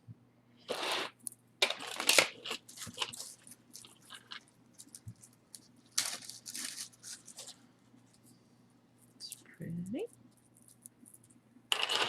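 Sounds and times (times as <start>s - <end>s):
plastic packaging crinkling: 1.6s - 7.6s.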